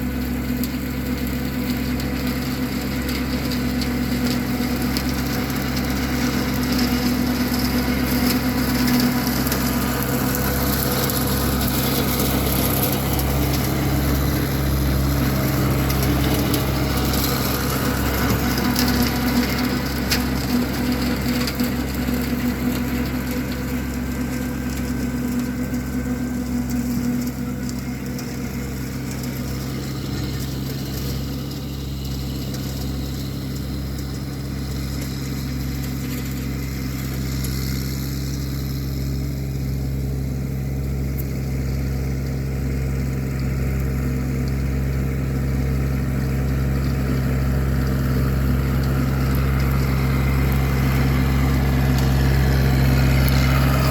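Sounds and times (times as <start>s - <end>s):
tractor diesel engine under load: 0.0s - 53.9s.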